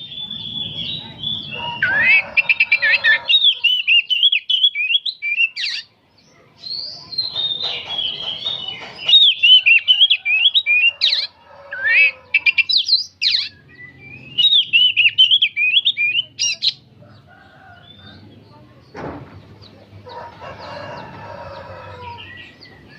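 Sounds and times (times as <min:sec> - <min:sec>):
bird singing whistled song: 0:00.0 - 0:05.9, 0:06.6 - 0:16.8.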